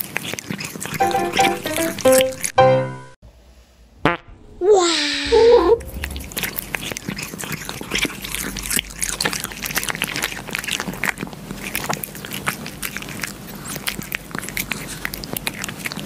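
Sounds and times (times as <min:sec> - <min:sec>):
kitten licking: 0:06.0 - 0:16.0.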